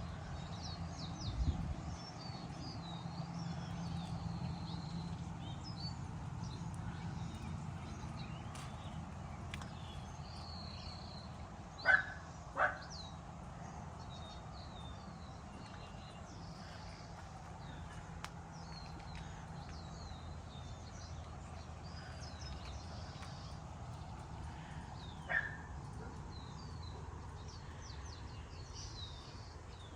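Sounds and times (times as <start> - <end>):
small birds chirping: 0.0 - 29.9
steady low rumble: 0.0 - 29.9
dog barking: 11.8 - 12.9, 25.3 - 26.2.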